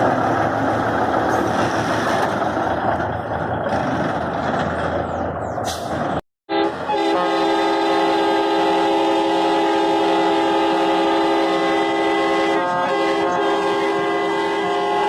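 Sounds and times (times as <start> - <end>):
truck air horn blowing: 6.5 - 15.0.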